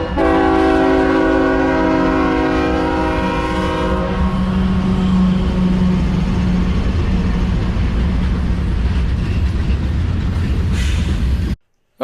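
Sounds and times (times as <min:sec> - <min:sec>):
locomotive air horn chord: 0:00.0 - 0:05.8
train rumbling: 0:00.0 - 0:11.6.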